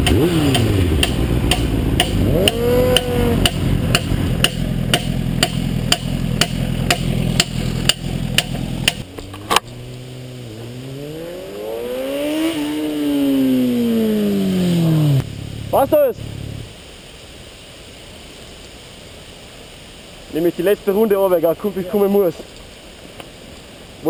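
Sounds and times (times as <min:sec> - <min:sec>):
motorcycle engine knocking: 0:00.0 - 0:09.0
engine note climbing: 0:00.0 - 0:16.8.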